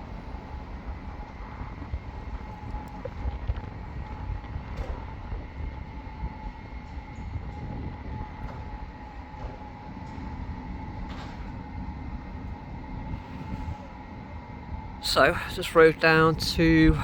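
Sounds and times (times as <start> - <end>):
wind buffeting microphone: 0.0 - 15.6, 16.2 - 17.0
faint high whine: 11.2 - 17.0.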